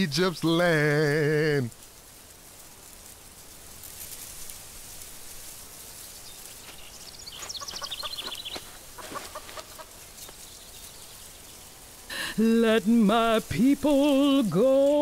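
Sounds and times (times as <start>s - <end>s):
bird calls: 0.0s - 1.3s, 6.0s - 12.4s
steady high outdoor hiss: 0.0s - 15.0s.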